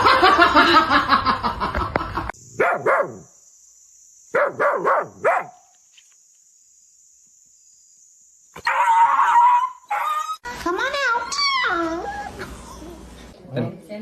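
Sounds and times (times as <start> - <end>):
dog barking: 2.6 - 3.3, 4.3 - 5.6.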